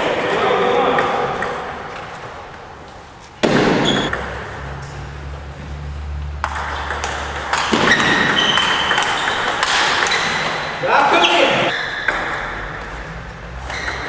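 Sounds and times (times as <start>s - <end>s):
table tennis ball knocking: 3.4s - 11.2s, 12.0s - 12.9s.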